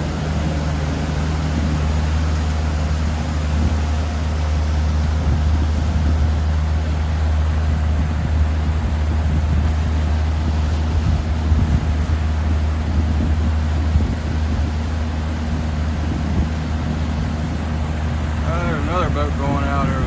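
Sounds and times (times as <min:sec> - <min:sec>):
outboard motor humming: 0:00.0 - 0:20.0
rushing wind: 0:00.0 - 0:20.0
water noise: 0:00.0 - 0:20.0.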